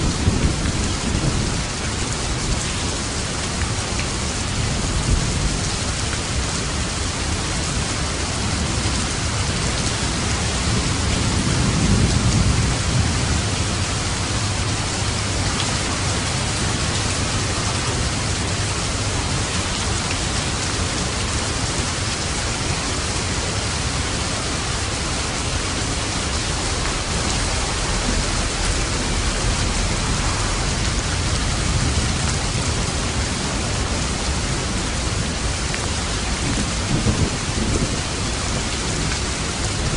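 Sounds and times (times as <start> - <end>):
thunder rumble: 0.0 - 1.8, 8.5 - 21.6, 23.3 - 39.9
rain on a roof: 0.0 - 39.9.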